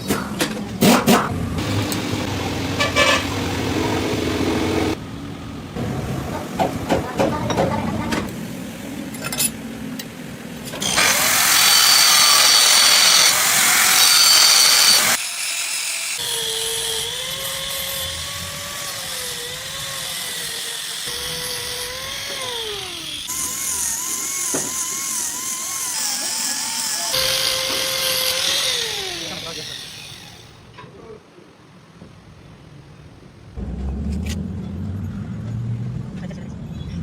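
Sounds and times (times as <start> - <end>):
harsh metal grinding: 10.8 - 30.7
machine motor whine: 21.0 - 30.6.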